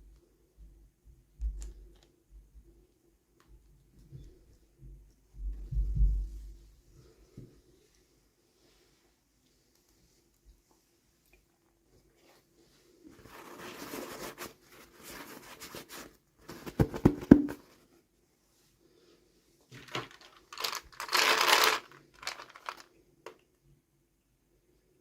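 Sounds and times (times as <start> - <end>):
packaging tearing and crinkling: 19.8 - 22.9.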